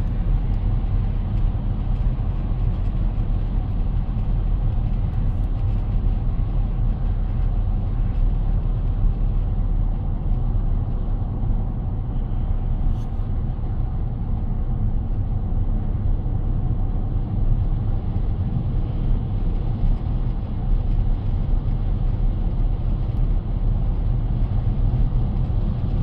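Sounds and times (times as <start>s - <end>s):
car cabin road rumble: 0.0s - 26.0s.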